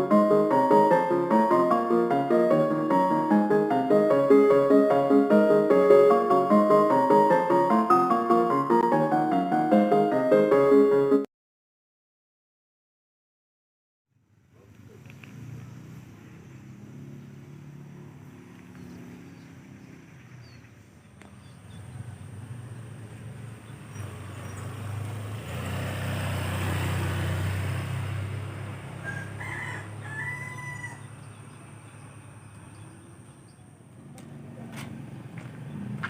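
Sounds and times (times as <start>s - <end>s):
low vehicle rumble: 14.2s - 36.0s
rooster crowing: 28.9s - 31.3s.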